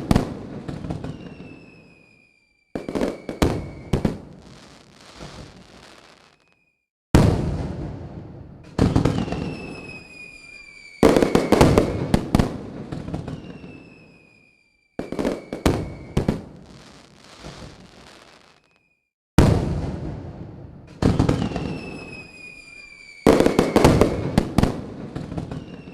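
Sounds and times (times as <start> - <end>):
fireworks crackle: 0.0 - 6.7, 8.6 - 19.1, 20.9 - 25.9
fireworks bangs: 0.0 - 25.9
high falling whistle: 0.7 - 4.0, 9.1 - 12.1, 13.0 - 16.3, 21.4 - 24.2, 25.4 - 25.9.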